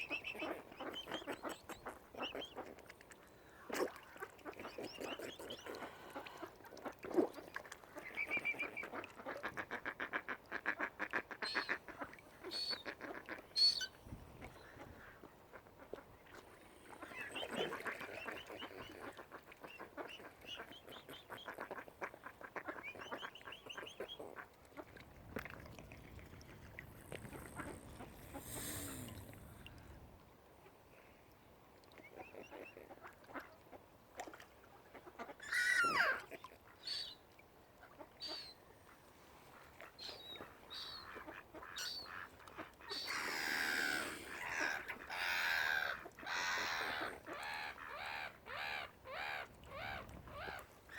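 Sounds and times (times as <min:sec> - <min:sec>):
waterfowl calling: 0:08.0 - 0:25.0, 0:35.0 - 0:37.2, 0:39.6 - 0:50.9.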